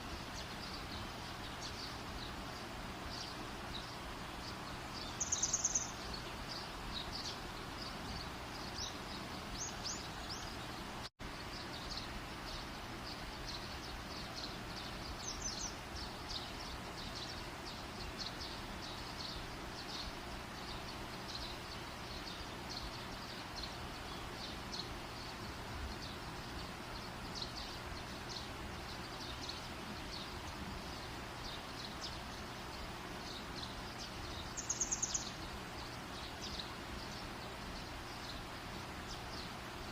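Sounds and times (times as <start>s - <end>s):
steady outdoor hiss: 0.0s - 39.9s.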